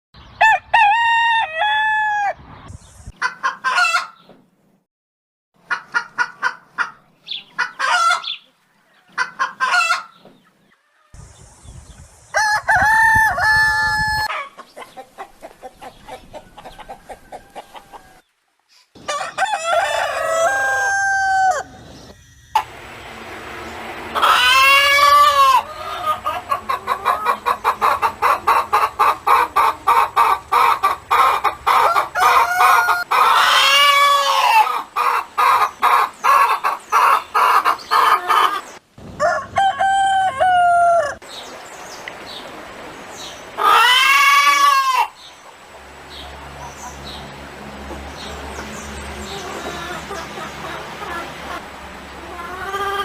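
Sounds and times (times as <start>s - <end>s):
rooster crowing: 0.4s - 2.4s, 12.4s - 14.4s, 16.5s - 18.2s, 19.0s - 21.8s, 24.2s - 26.4s, 31.7s - 34.8s, 39.2s - 41.2s
chickens clucking: 3.1s - 4.4s, 5.6s - 11.2s, 12.7s - 42.5s, 43.2s - 53.0s.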